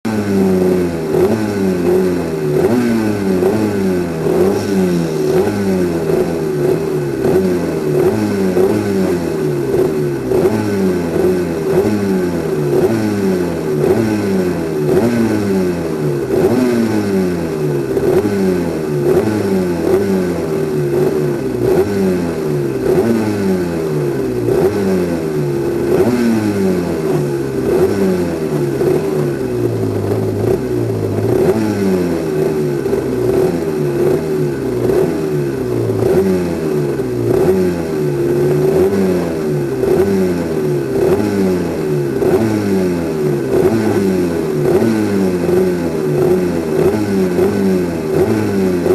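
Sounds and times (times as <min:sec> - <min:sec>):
two-stroke kart engine revving: 0:00.0 - 0:48.9.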